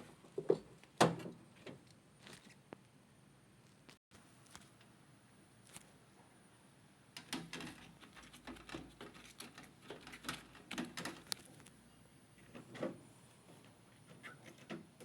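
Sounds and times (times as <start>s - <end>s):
handling clicks taps and rustles: 7.2s - 11.7s.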